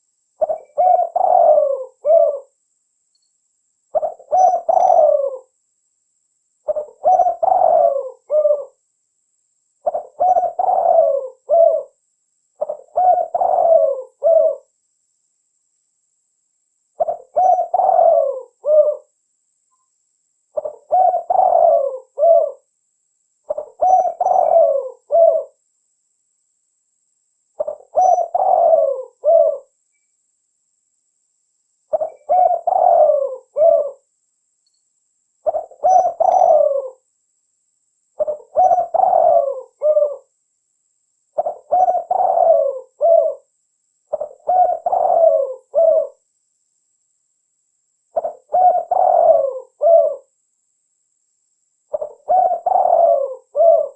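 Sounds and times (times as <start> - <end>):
dove cooing: 0.0 - 2.6, 3.9 - 5.6, 6.7 - 8.8, 9.8 - 12.0, 12.6 - 14.7, 17.0 - 19.2, 20.6 - 22.7, 23.5 - 25.6, 27.6 - 29.8, 31.9 - 34.1, 35.4 - 37.1, 38.2 - 40.3, 41.4 - 43.5, 44.1 - 46.2, 48.2 - 50.3, 51.9 - 53.9.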